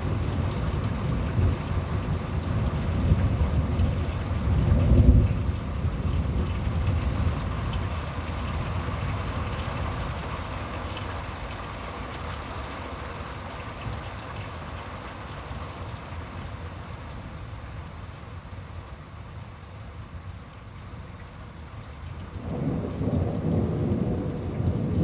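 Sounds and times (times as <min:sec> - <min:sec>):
thunder rumbling: 0:00.0 - 0:08.0, 0:22.3 - 0:25.0
steady rain: 0:00.0 - 0:25.0.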